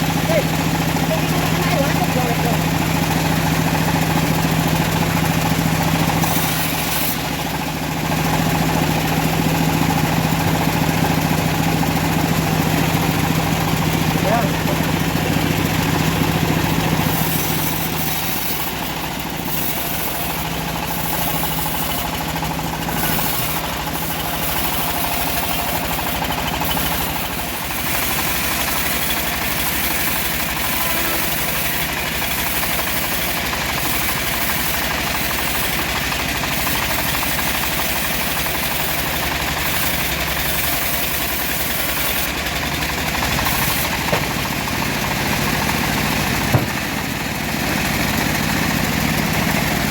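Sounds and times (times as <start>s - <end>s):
bandsaw mill engine running: 0.0s - 49.9s.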